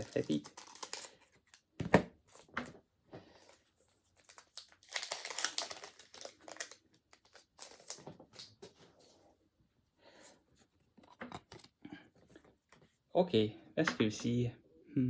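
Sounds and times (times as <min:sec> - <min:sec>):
foil wrapper crinkling: 0:00.0 - 0:01.6, 0:04.2 - 0:08.5.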